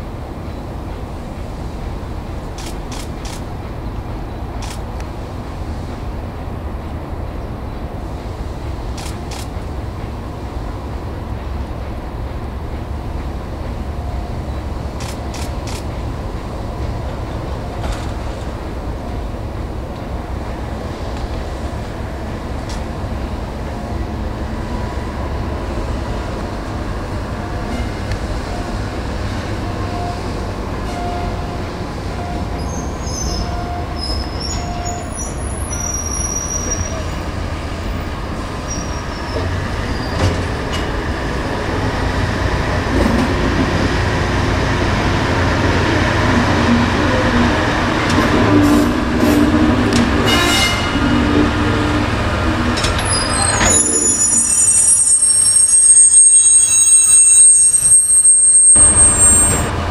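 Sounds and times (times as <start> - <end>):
locomotive engine and wheel rumble: 0.0 - 59.9
wheels squealing on rails: 25.6 - 59.9.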